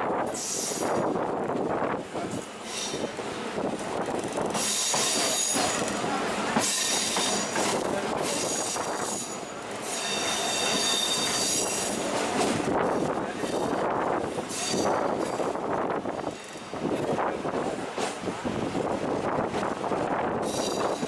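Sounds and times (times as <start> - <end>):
moving train rumble: 0.0 - 21.0
train wheels squealing on rails: 0.2 - 1.3, 2.2 - 17.2, 20.3 - 21.0.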